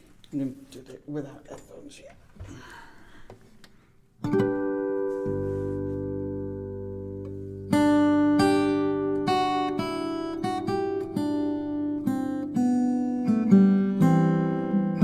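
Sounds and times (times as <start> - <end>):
acoustic guitar music: 3.4 - 15.0.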